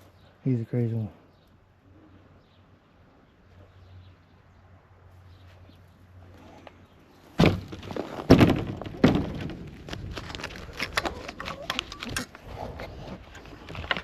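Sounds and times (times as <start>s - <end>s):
loud thumps and crunches: 7.4s - 11.4s.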